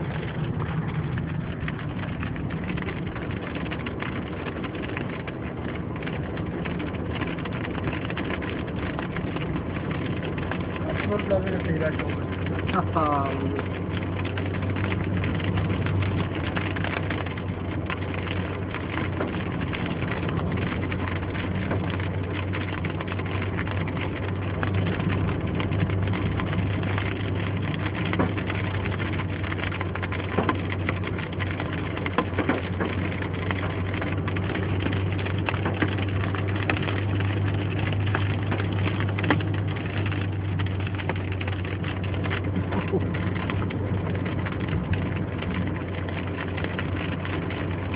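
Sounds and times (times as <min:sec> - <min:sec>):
car engine and road drone: 0:00.0 - 0:47.9
rain ticking on car: 0:00.0 - 0:47.9.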